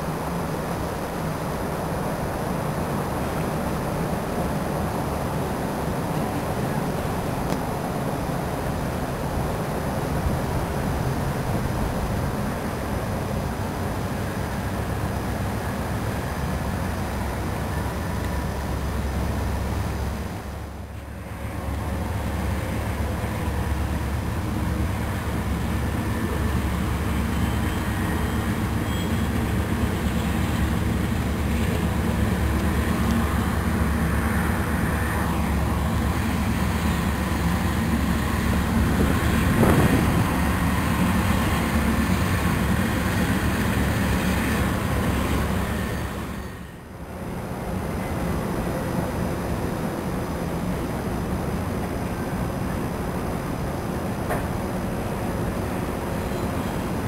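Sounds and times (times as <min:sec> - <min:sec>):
freight train rumbling over bridge: 0:00.0 - 0:57.0.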